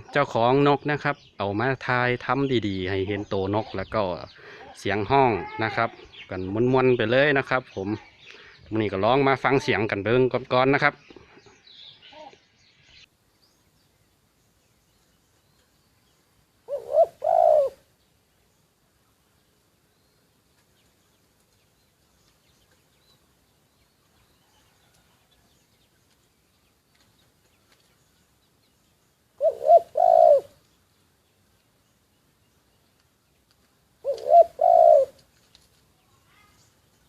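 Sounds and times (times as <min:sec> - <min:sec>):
dove cooing: 0:16.7 - 0:17.9, 0:29.4 - 0:30.6, 0:34.0 - 0:35.2.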